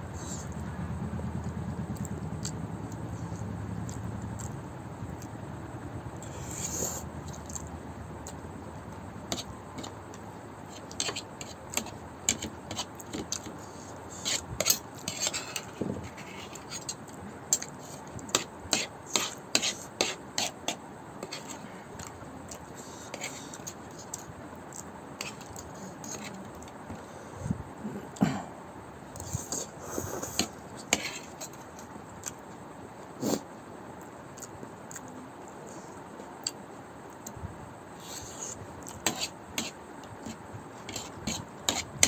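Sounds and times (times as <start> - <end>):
eating clicks and scrapes: 6.2 - 8.4, 9.3 - 27.0, 29.2 - 32.4, 38.0 - 42.0.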